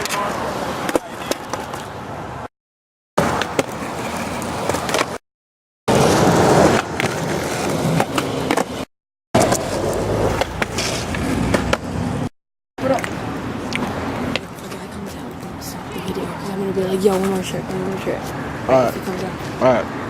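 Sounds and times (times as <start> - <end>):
skateboard wheels rolling on pavement: 0.0 - 2.5, 3.2 - 5.2, 5.9 - 19.6
skateboard clacks and knocks: 3.2 - 5.2.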